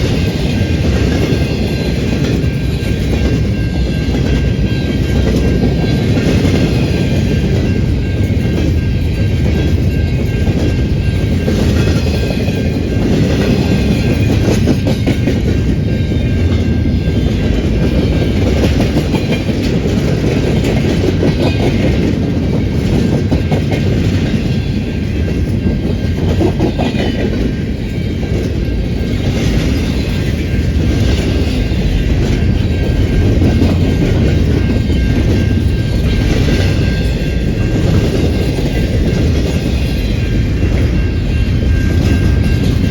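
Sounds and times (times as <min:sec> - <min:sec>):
clickety-clack over rail joints: 0:00.0 - 0:42.9
train wheels rumbling on rails: 0:00.0 - 0:42.9.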